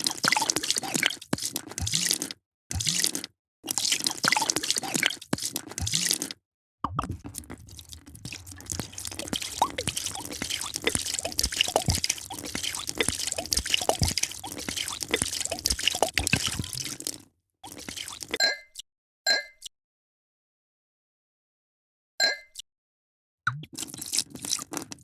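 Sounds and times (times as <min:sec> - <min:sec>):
drink pouring and trickling: 0:03.7 - 0:06.2, 0:06.9 - 0:18.4, 0:23.7 - 0:25.0.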